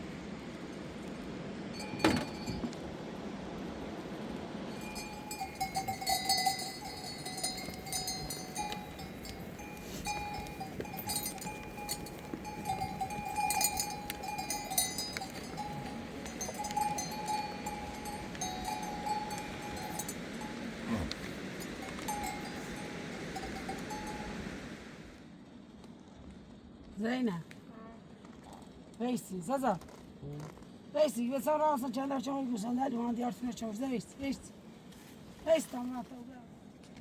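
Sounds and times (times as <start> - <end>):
livestock bells clinking: 1.7 - 2.7, 4.7 - 24.6.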